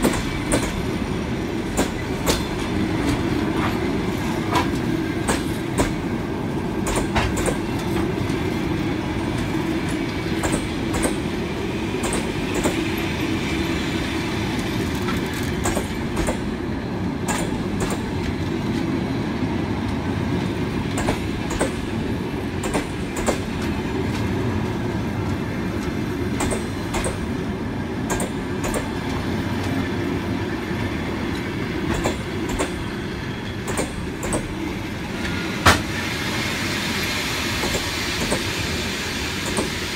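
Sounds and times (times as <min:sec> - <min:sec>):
rumble of wheels on rails: 0:00.0 - 0:39.9
wheels clacking over rail joints: 0:01.7 - 0:06.1, 0:06.8 - 0:08.5, 0:09.2 - 0:12.9, 0:14.6 - 0:16.5, 0:20.4 - 0:27.4, 0:28.0 - 0:29.8, 0:31.3 - 0:32.9.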